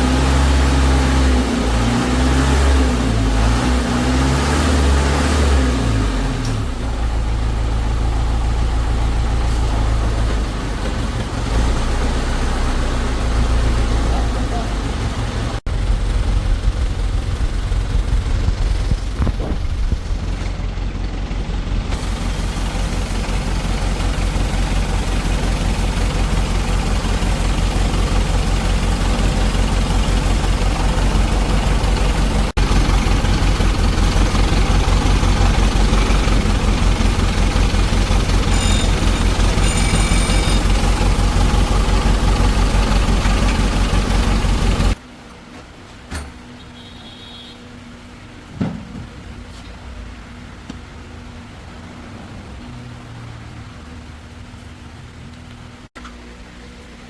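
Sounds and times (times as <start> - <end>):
diesel engine idling: 0.0 - 45.1.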